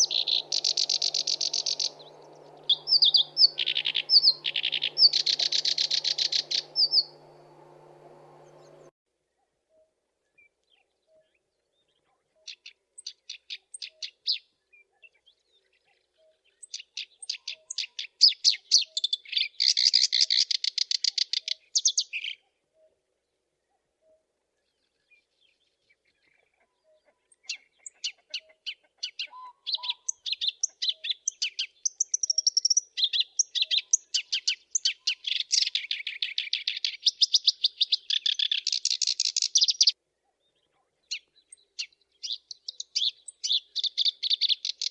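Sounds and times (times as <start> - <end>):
reed warbler singing: 0.0 - 8.9, 27.4 - 39.9, 41.1 - 44.9.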